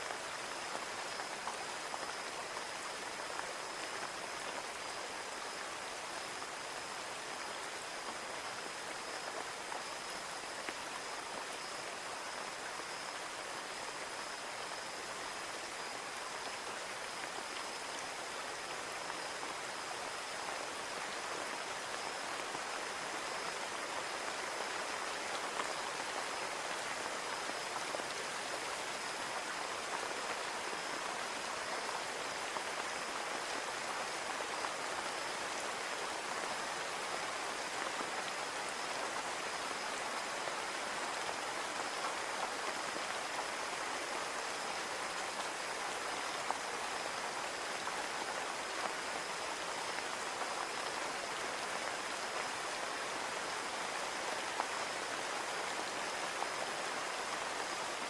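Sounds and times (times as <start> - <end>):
rain falling on a window: 0.0 - 58.0.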